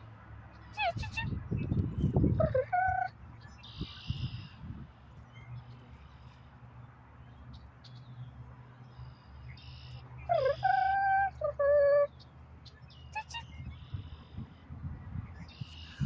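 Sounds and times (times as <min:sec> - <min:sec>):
faint short bird chirps: 0:09.2 - 0:10.0.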